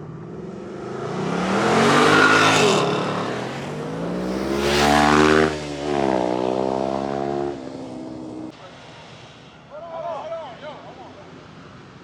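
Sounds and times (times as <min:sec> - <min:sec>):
race cars passing at full throttle: 0:00.0 - 0:08.6.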